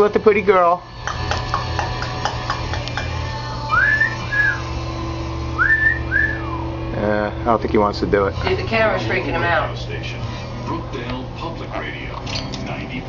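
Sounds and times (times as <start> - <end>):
wolf whistles: 3.7 - 4.7, 5.6 - 6.7.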